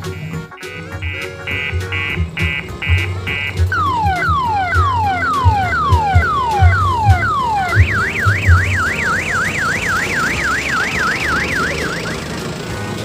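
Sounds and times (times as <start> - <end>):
electronic siren: 0.2 - 12.5
low thumps: 0.9 - 10.0.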